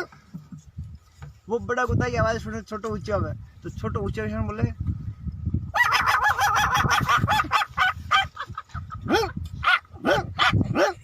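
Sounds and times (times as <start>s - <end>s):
man imitating dog yapping: 5.7s - 8.3s, 9.0s - 11.0s.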